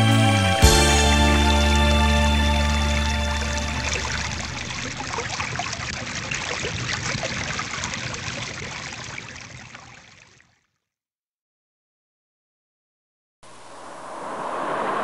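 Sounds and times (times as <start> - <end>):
stream water trickling and bubbling: 2.7 - 10.8.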